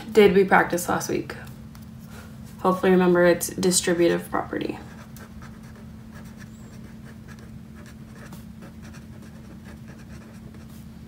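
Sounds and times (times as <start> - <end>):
steady low hum: 0.0 - 11.0
pen scratching on paper: 4.9 - 10.8.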